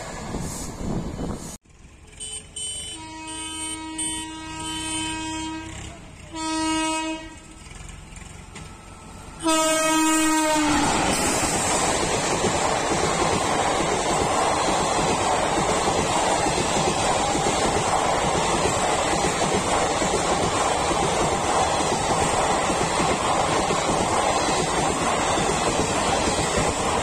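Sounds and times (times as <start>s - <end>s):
train wheels rushing on rails: 0.0s - 3.0s, 3.6s - 27.0s
train horn blasts: 2.1s - 7.6s, 9.4s - 11.3s.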